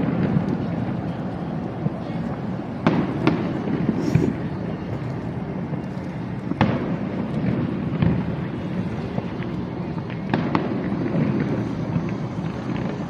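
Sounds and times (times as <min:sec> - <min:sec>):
fireworks crackling: 0:00.0 - 0:13.0
sharp firework bangs: 0:02.8 - 0:04.5, 0:06.5 - 0:08.9, 0:09.9 - 0:13.0.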